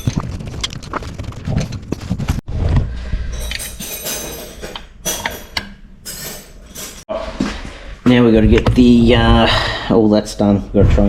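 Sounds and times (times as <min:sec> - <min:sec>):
parts and tools knocking: 0:03.4 - 0:07.0.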